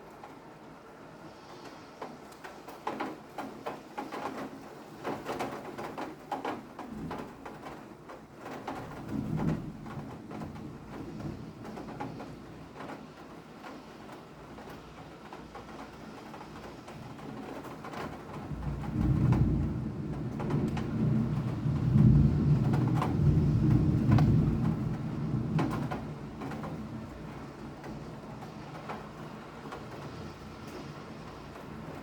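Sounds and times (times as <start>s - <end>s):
rain falling steadily: 0.0s - 32.0s.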